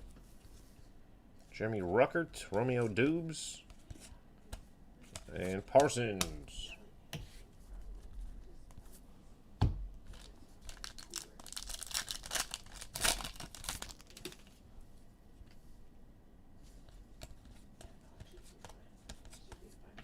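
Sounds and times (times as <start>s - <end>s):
card pack wrapper tearing: 10.1s - 14.5s.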